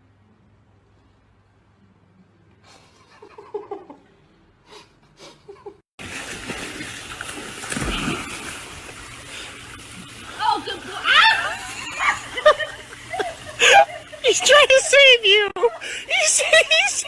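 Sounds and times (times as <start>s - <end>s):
water splashing and churning: 6.0s - 17.0s.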